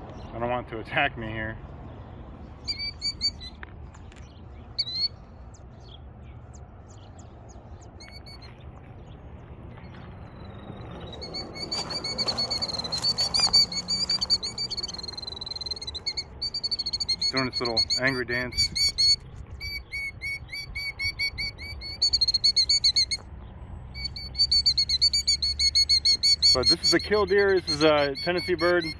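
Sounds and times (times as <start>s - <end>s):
bird rapid high trill: 2.6s - 3.6s, 10.4s - 23.2s, 24.0s - 28.9s
bird sharp high calls: 2.6s - 6.0s, 6.9s - 23.2s, 23.9s - 28.9s.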